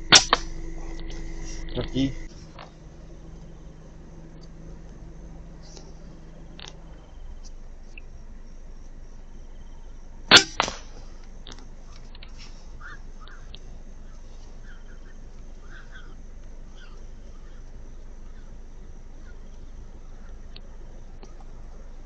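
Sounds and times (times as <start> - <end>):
weaker second crack: 0.0 - 2.7, 10.3 - 11.7
air rifle shot crack: 0.1 - 0.6, 10.3 - 11.0.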